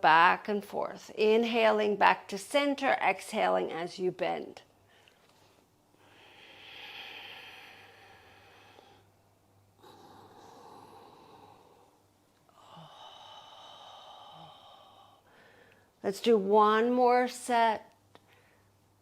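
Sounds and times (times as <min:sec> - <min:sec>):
woman breathing slowly: 0:04.8 - 0:16.0, 0:18.2 - 0:18.9.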